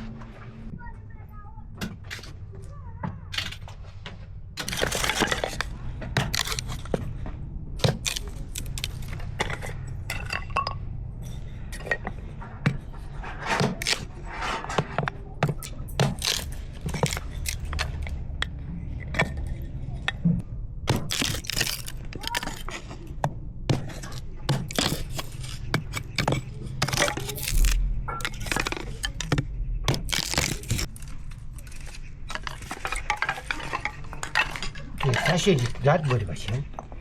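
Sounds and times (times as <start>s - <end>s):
dishes and utensils clinking: 7.8s - 20.4s, 21.2s - 37.0s
steady low rumble: 15.8s - 22.2s, 23.2s - 34.4s.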